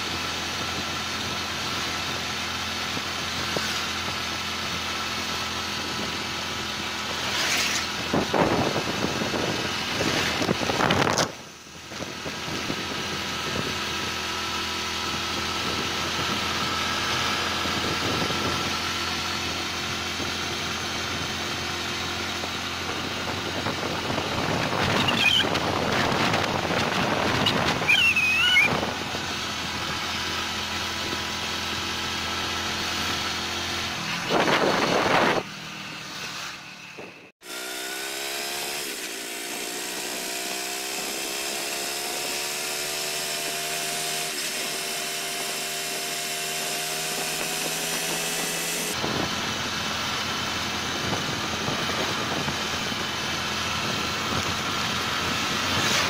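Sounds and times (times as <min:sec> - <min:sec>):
wind noise on microphone: 0:00.0 - 0:31.4, 0:32.9 - 0:35.6, 0:45.9 - 0:56.0
motorcycle engine running: 0:00.0 - 0:56.0.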